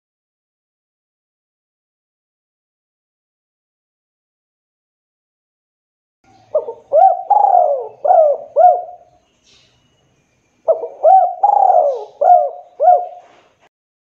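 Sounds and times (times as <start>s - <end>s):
dove cooing: 6.3s - 9.1s, 10.7s - 13.5s.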